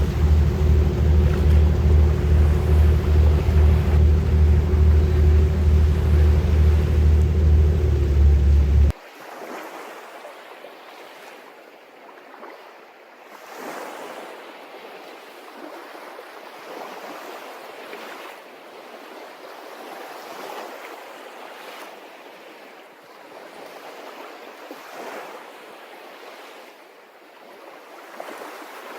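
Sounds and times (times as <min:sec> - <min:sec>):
small waves washing: 0:00.0 - 0:08.9.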